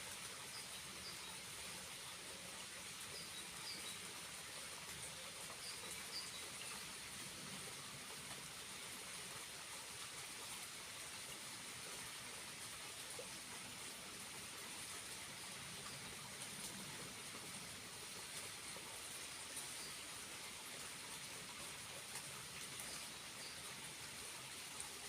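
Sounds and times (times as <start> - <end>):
small waterfall rushing: 0.0 - 25.0.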